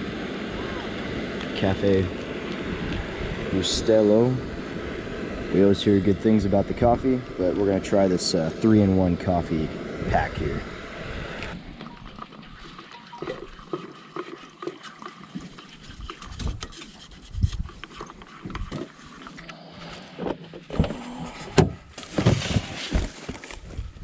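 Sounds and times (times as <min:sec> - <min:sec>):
liquid being poured: 0:11.5 - 0:17.1.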